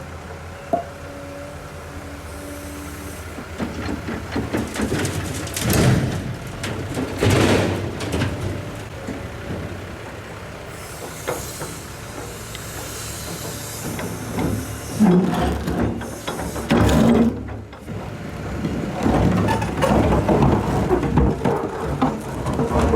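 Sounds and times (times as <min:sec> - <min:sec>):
excavator diesel engine running: 0:00.0 - 0:22.9
clattering bursts: 0:03.6 - 0:08.9
hiss: 0:10.7 - 0:15.0.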